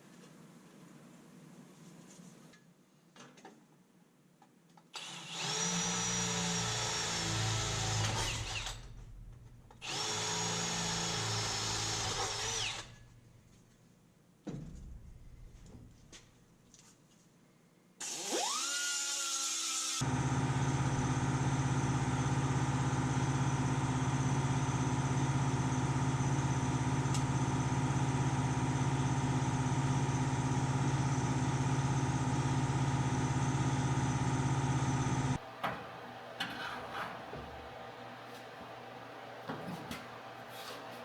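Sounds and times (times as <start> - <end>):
power tool motor whine: 5.0 - 8.8, 9.8 - 13.0, 18.0 - 23.6.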